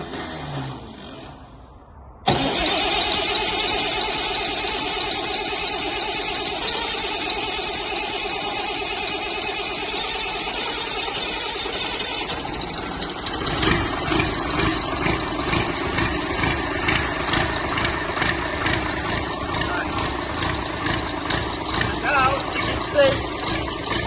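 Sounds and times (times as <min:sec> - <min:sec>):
tractor engine running: 0:02.2 - 0:24.0.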